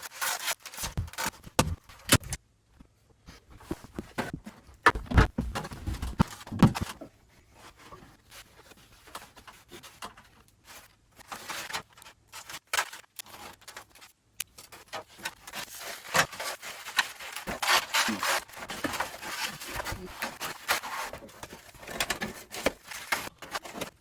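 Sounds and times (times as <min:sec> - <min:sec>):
scraping rustling and tearing: 0:00.0 - 0:02.4, 0:03.3 - 0:24.0.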